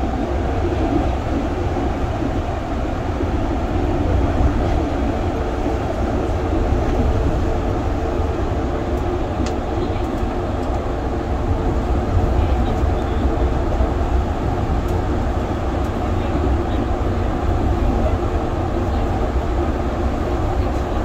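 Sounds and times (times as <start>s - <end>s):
train running low rumble: 0.0s - 21.0s.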